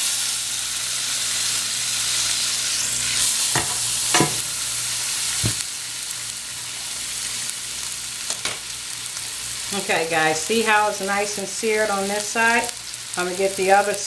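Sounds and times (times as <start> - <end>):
meat sizzling in oil: 0.0 - 14.0.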